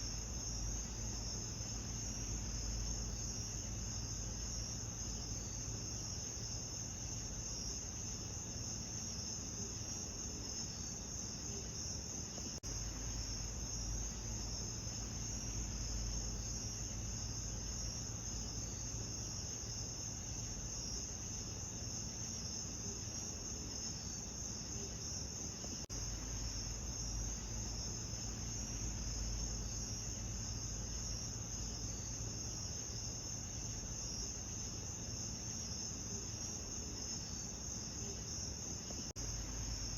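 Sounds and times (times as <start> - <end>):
low steady rumble: 0.0 - 9.0, 12.5 - 21.8, 25.9 - 37.0, 39.0 - 39.9
crickets trilling: 0.0 - 39.9.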